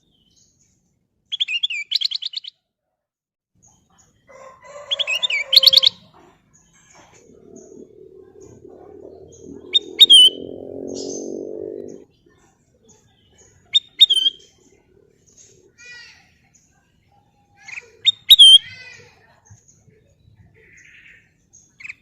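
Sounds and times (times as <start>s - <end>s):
low droning hum: 7.0s - 12.0s
bird whistled calls: 7.2s - 12.0s.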